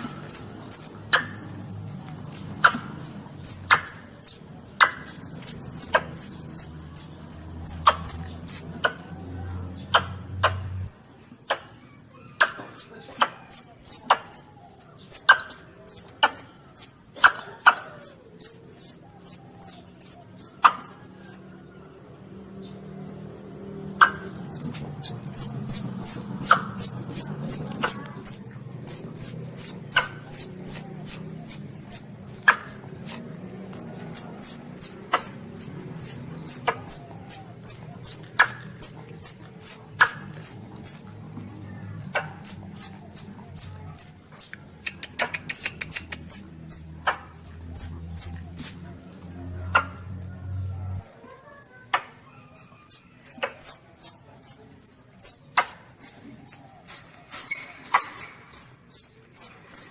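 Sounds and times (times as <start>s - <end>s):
civet kitten squeaking: 0.0s - 1.3s, 2.2s - 8.9s, 12.3s - 21.4s, 24.0s - 33.3s, 34.0s - 41.1s, 42.0s - 48.8s, 52.2s - 59.9s
sharp clicks: 42.1s - 48.8s.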